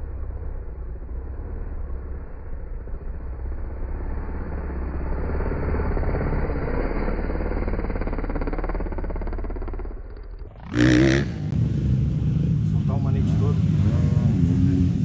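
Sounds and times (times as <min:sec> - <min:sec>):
motocross bike engine running: 0:00.0 - 0:15.0.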